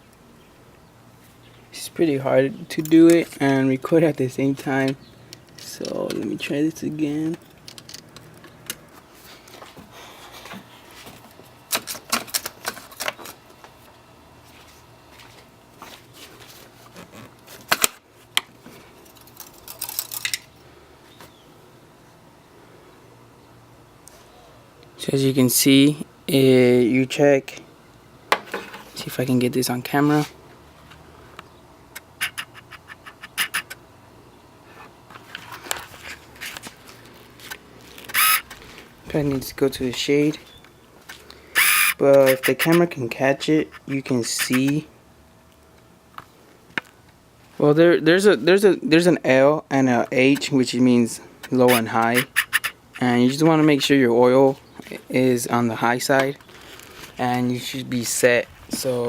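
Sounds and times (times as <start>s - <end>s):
handling noise scraping and rustling: 4.6s - 20.5s, 28.4s - 29.1s, 29.9s - 31.0s, 34.7s - 41.3s, 56.1s - 59.0s.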